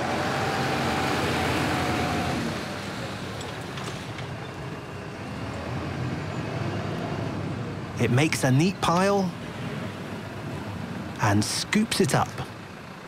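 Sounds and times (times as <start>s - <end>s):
tractor engine running: 7.2s - 13.0s.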